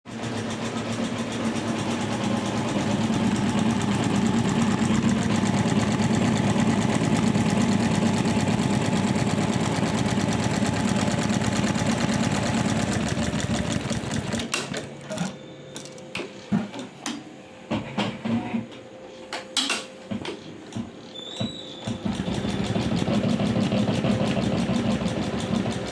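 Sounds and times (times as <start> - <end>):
embroidery machine stitching: 0.1 - 14.7, 21.8 - 25.9.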